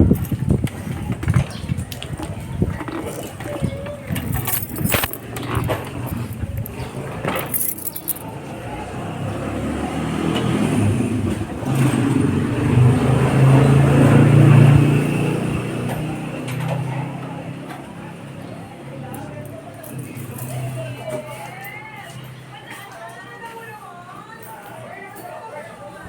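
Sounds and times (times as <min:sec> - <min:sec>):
rattling clicks: 0:00.1 - 0:08.3.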